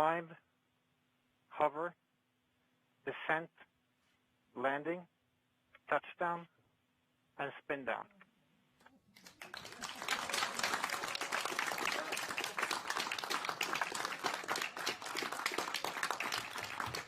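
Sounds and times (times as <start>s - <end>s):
room full of people clapping: 9.1s - 17.0s.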